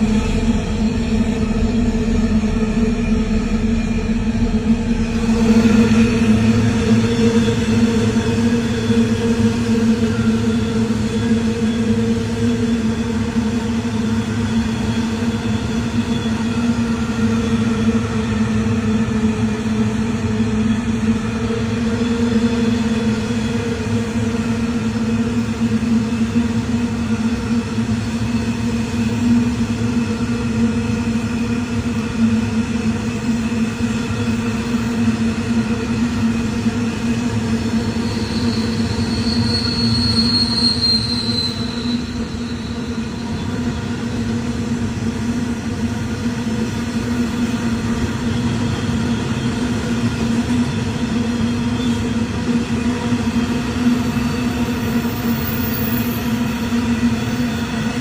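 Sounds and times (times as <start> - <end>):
train running hum: 0.0 - 58.0
high wheel squeal: 37.5 - 44.0, 54.0 - 58.0.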